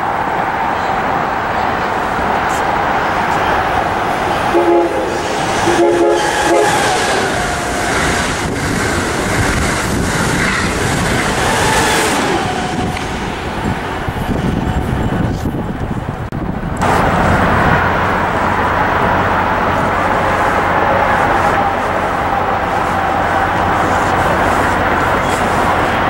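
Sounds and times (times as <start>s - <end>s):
train rumble and rail noise: 0.0s - 26.0s
locomotive air horn: 4.4s - 7.3s, 19.8s - 26.0s.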